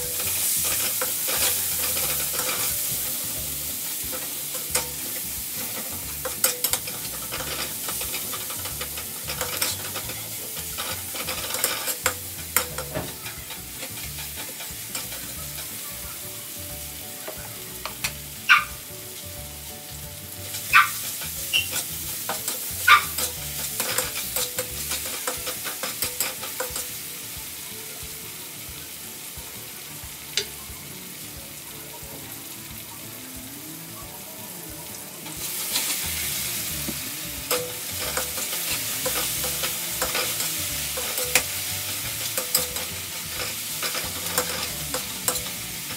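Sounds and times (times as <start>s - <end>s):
metal spatula scraping a wok: 0.0s - 15.9s, 20.5s - 27.0s, 35.5s - 36.5s, 37.5s - 45.9s
vegetables sizzling in hot oil: 0.0s - 45.9s.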